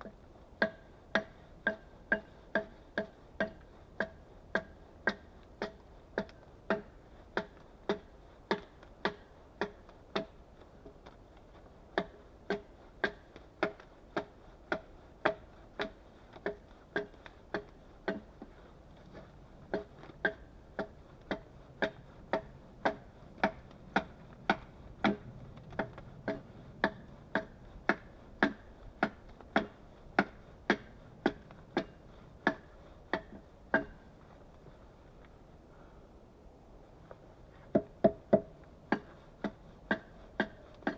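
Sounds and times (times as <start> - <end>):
hand tool knocking on wood: 37.7 - 40.9.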